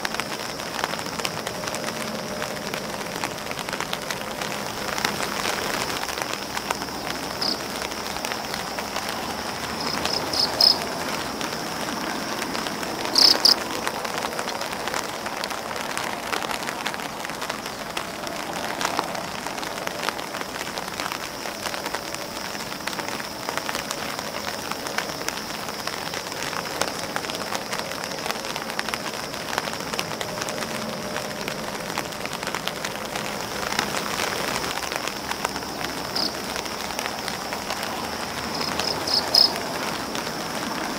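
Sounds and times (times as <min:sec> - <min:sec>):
rain pattering on umbrella: 0:00.0 - 0:40.9.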